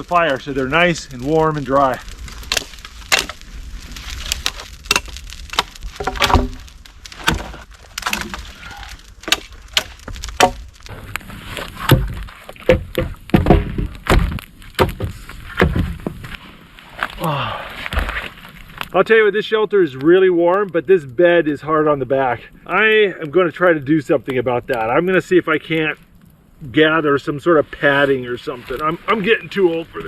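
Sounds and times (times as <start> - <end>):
sticks cracking and snapping: 0.0 - 16.2.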